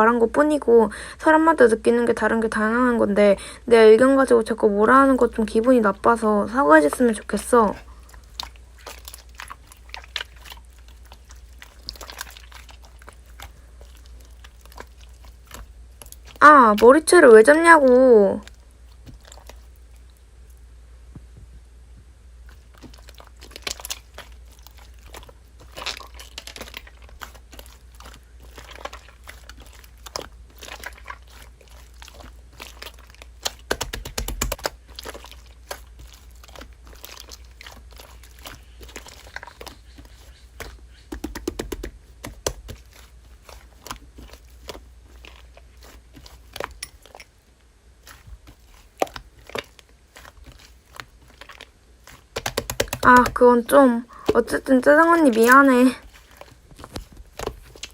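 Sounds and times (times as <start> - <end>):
low steady hum: 0.0 - 57.9
slime crackling and popping: 22.5 - 47.2, 48.0 - 57.9.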